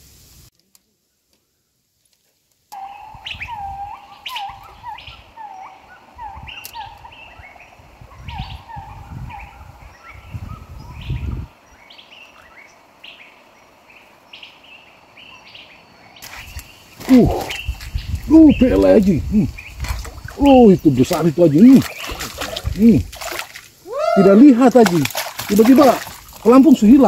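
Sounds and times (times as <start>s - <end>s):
high bird chirps: 2.7s - 22.4s.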